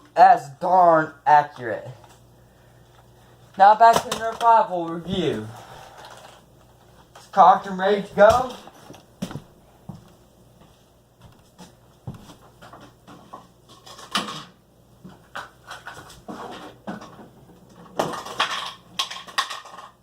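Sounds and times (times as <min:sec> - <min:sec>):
plastic clattering: 0:12.7 - 0:20.0.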